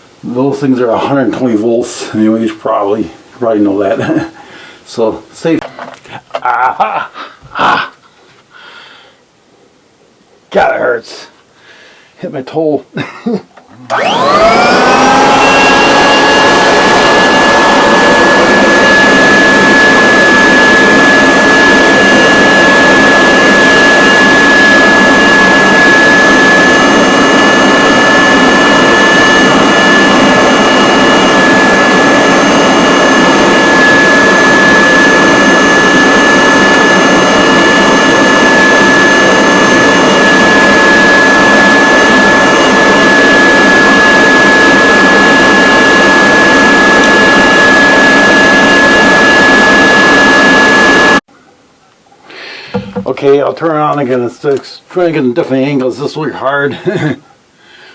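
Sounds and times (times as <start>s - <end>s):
vacuum cleaner motor running: 13.9s - 51.2s.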